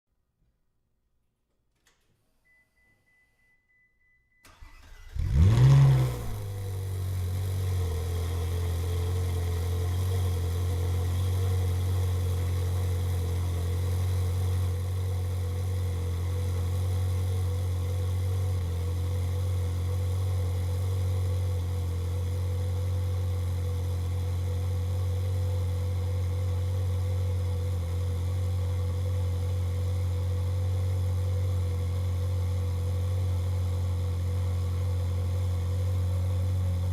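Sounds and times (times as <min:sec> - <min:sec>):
faint high tone: 0:02.3 - 0:04.6
car engine revving and idling: 0:04.7 - 0:36.9.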